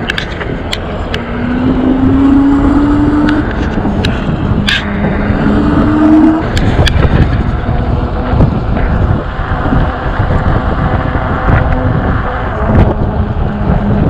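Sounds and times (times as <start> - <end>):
road rumble: 0.0 - 14.0
wind buffeting microphone: 0.0 - 14.0
electric motor whine: 0.8 - 14.0.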